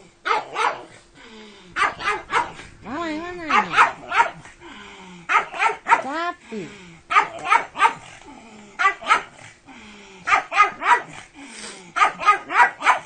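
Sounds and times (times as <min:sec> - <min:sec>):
dog barking: 0:00.2 - 0:00.9, 0:01.8 - 0:02.6, 0:03.5 - 0:04.5, 0:05.3 - 0:06.2, 0:07.1 - 0:08.1, 0:08.8 - 0:09.4, 0:10.3 - 0:11.2, 0:12.0 - 0:13.0.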